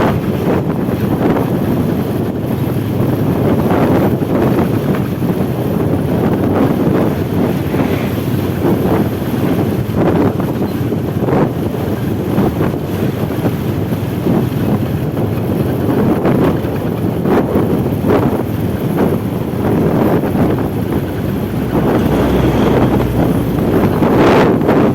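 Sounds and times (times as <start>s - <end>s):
road traffic rumble: 0.0s - 24.9s
wind buffeting microphone: 0.0s - 24.9s.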